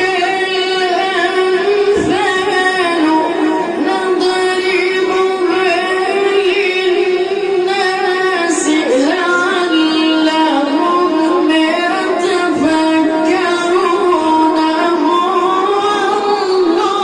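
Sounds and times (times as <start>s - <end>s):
child chanting melodically: 0.0s - 17.0s.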